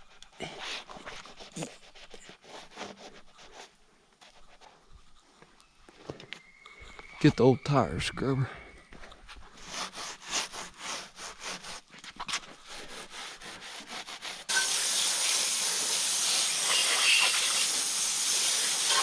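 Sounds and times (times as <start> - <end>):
scrub brush scrubbing a tire: 0.4 - 4.4, 9.5 - 19.0
garden hose spraying water: 14.2 - 19.0.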